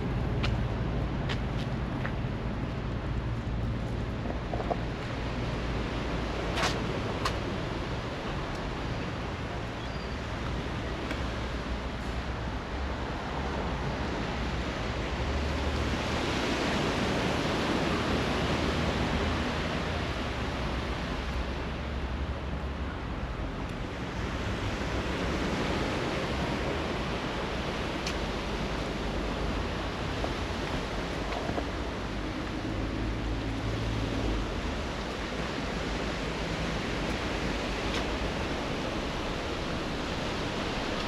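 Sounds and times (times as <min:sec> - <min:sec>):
sea surf washing onto beach: 0:00.0 - 0:41.0.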